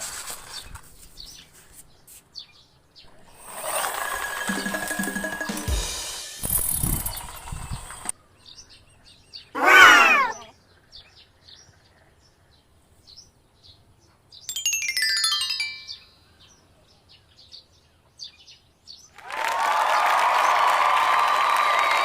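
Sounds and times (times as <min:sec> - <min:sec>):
loud wavering pitched call: 0:09.6 - 0:10.5.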